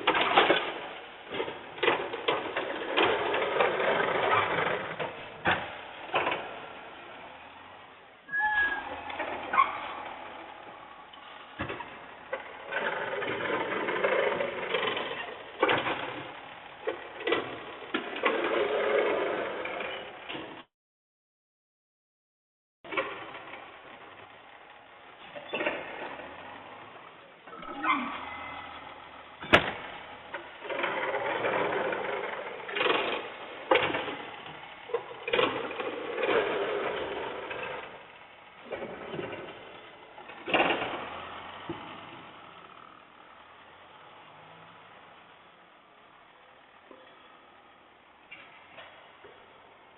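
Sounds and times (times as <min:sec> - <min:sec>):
mechanical clanking and rattling: 0:00.0 - 0:07.2, 0:08.8 - 0:20.6, 0:25.2 - 0:43.0.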